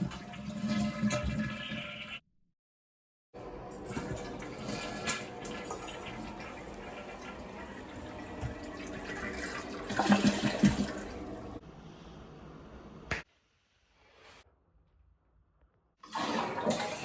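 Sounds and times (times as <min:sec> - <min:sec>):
toilet flushing: 0:00.0 - 0:02.2, 0:03.4 - 0:11.6, 0:16.0 - 0:17.0.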